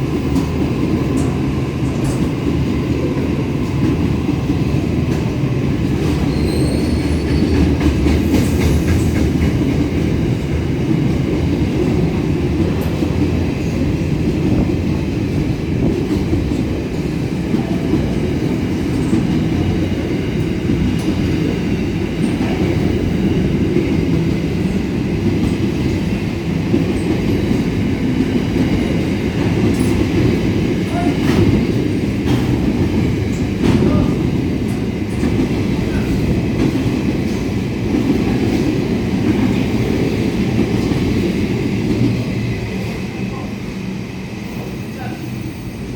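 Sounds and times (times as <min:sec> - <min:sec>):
train wagons rumbling: 0:00.0 - 0:45.9
high wheel squeals: 0:06.3 - 0:07.6.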